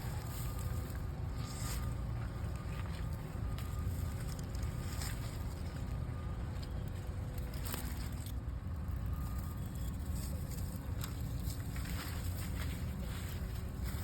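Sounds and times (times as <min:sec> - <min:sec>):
potato plants pulled from soil: 0:00.0 - 0:08.5
construction machinery rumble: 0:00.0 - 0:14.0.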